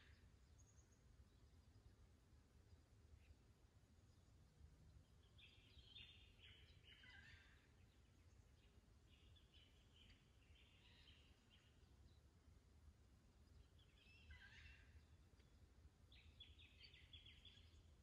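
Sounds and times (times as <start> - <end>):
faint low rumble: 0.0 - 18.0
faint bird calls: 5.4 - 7.8, 13.7 - 15.5.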